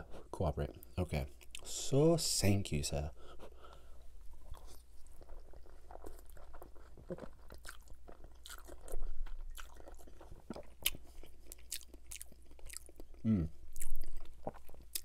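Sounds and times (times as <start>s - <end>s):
wet chewing with smacks: 4.4s - 15.0s.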